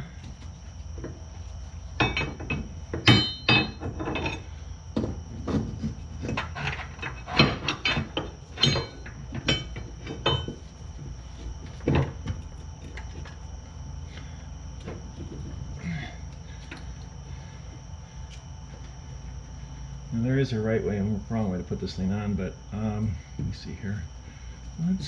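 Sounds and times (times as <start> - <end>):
metallic clanks and knocks: 2.0 - 4.4, 5.0 - 10.7.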